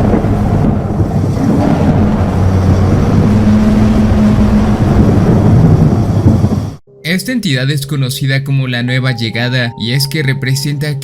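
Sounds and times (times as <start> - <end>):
storm-like roaring rumble: 0.0 - 6.8
low droning hums: 0.0 - 7.0.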